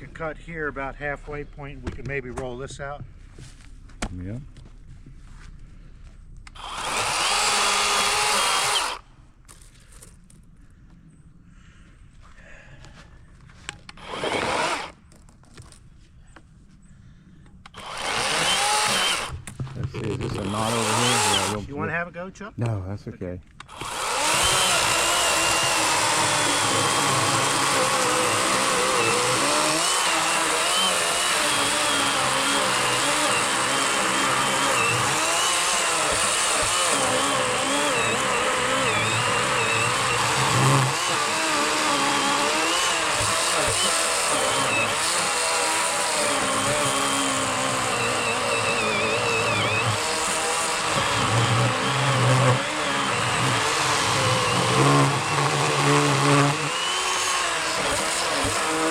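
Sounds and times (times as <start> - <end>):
electric chainsaw cutting log: 6.5 - 9.1, 13.9 - 15.0, 17.7 - 21.9, 23.6 - 58.9.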